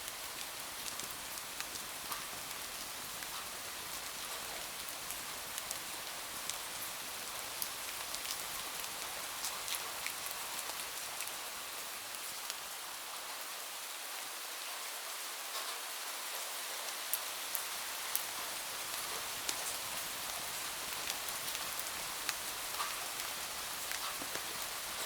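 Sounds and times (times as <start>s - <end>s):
steady rain falling: 0.0s - 25.0s
rain drop ticks: 17.5s - 25.0s.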